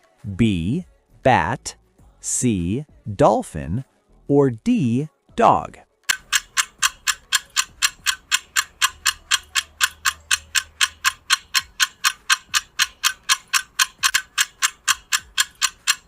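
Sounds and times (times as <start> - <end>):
ticking clock: 6.1 - 16.0.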